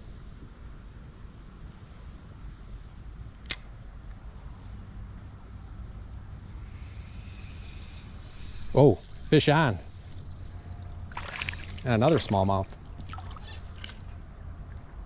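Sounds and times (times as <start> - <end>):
high-pitched insect chorus trilling: 0.0 - 15.0
sharp click: 3.4 - 3.7.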